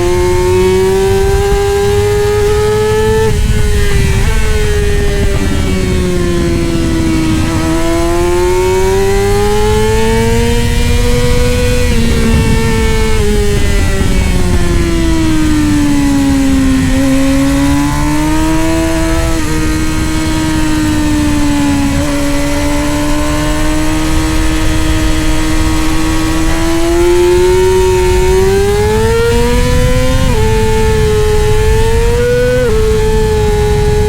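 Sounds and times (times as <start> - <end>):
racing motorcycle engine: 0.0 - 34.0
steady low rumble: 3.1 - 18.8.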